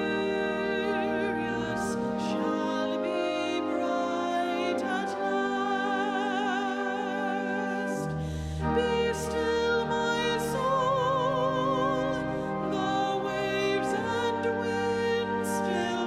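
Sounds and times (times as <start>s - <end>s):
held accompanying chords: 0.0s - 16.0s
person singing with vibrato: 0.0s - 16.0s.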